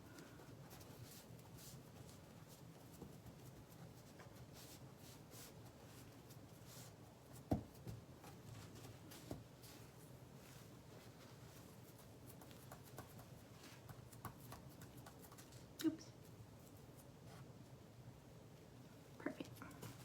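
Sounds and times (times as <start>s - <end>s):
hand rubbing leaf on surface: 0.7s - 7.0s.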